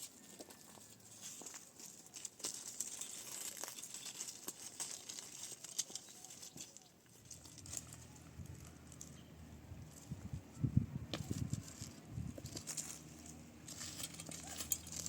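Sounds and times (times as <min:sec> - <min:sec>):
rustling and crackling: 0:00.0 - 0:15.0.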